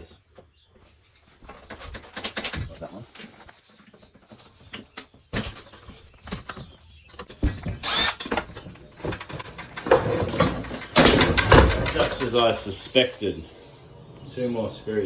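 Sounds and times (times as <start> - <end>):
clicks and rattles of parts handled: 1.4 - 12.5.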